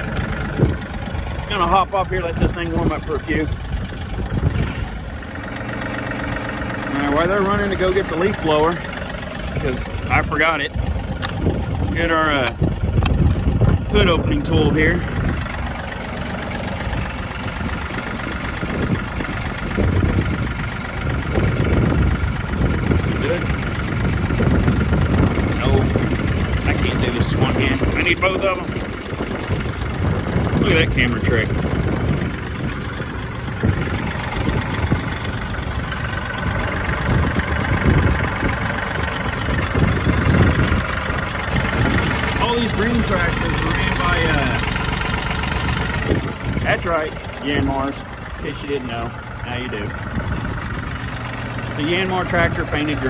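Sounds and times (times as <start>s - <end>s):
tractor diesel engine idling: 0.0s - 53.0s.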